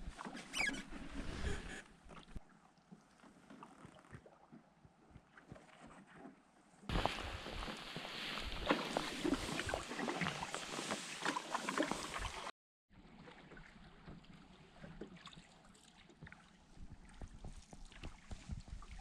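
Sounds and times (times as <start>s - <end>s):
water splashing around a canoe: 0.0s - 19.0s
water lapping: 6.9s - 19.0s.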